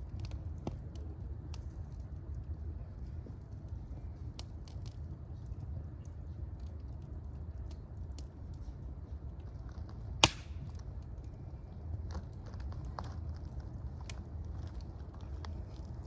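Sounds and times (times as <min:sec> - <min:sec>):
fire crackling: 0:00.0 - 0:16.0
low steady rumble: 0:00.0 - 0:16.0
loud sharp pop: 0:10.2 - 0:10.6.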